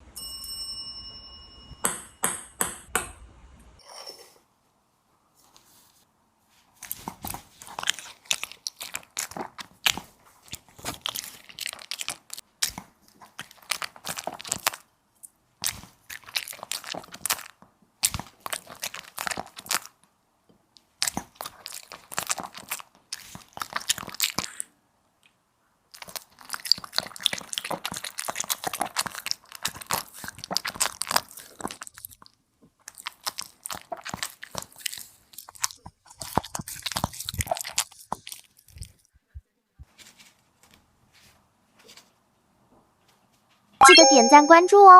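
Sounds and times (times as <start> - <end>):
dog crunching and chewing food: 6.8 - 14.9, 15.6 - 20.1, 20.8 - 24.7, 25.9 - 39.1.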